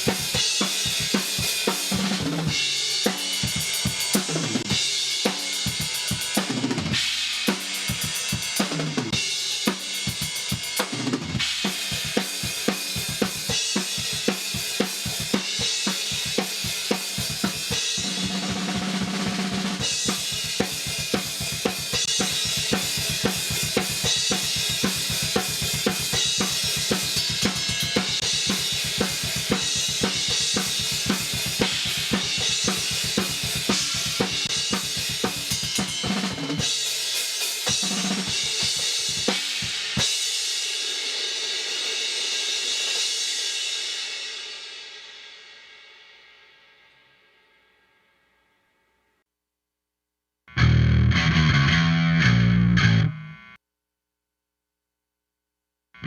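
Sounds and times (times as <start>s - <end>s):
heavy metal drum kit: 0.0s - 43.2s.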